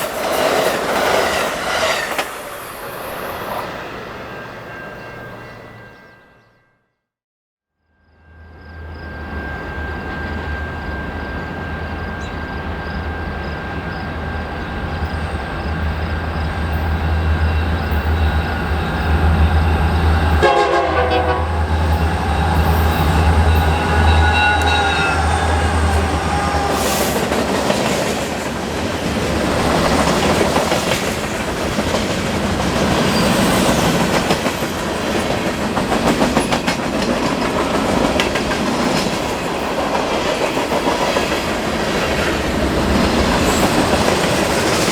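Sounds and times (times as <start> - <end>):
diesel locomotive engine hum: 8.2 - 44.9
train horn: 17.4 - 27.6.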